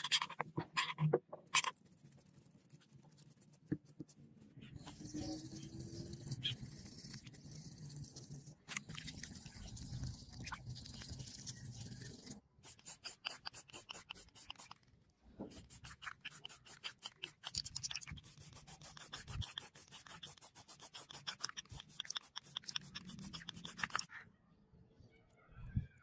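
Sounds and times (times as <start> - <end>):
rapid rhythmic scraping strokes: 15.5 - 24.1.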